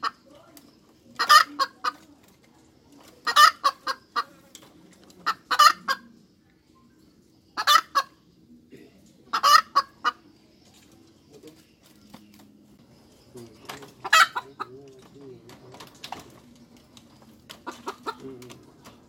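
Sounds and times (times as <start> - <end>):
hen cackling: 1.1 - 2.0, 3.2 - 4.4, 5.2 - 6.2, 7.5 - 8.2, 9.3 - 10.3, 14.0 - 14.7, 17.6 - 18.3.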